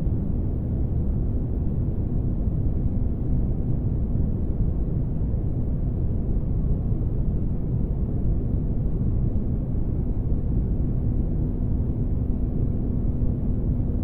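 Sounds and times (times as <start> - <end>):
faint constant hum: 0.0 - 14.0.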